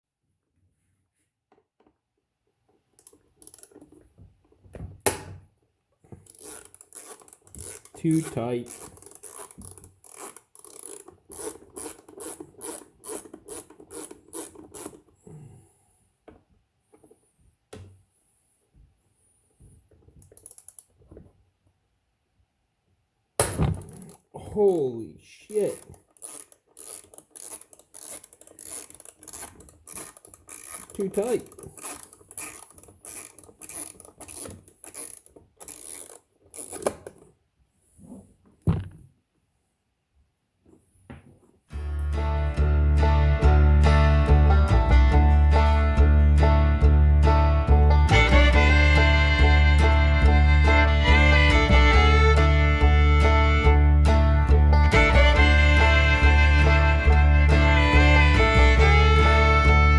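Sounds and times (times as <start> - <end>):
hand file rasping: 6.3 - 15.0, 25.7 - 36.9
thump: 23.4 - 24.1, 38.6 - 39.1.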